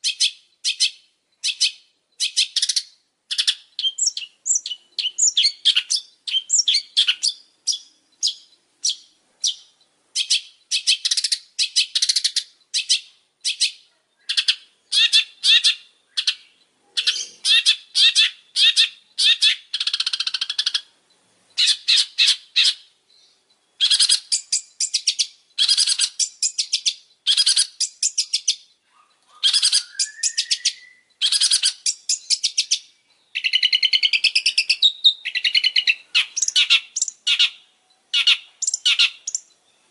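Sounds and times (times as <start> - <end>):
rising whistled bird note: 29.4 - 31.1.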